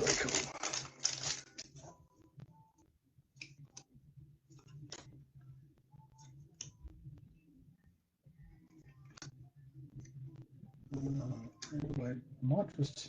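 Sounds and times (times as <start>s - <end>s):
foil wrapper crinkling: 0.0s - 1.7s.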